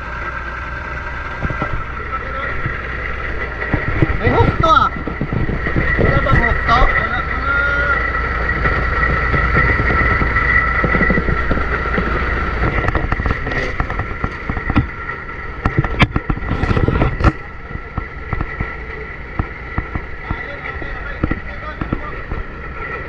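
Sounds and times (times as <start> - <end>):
truck engine rumbling with whine: 0.0 - 23.0
sharp knocks: 1.4 - 7.3, 8.0 - 22.7.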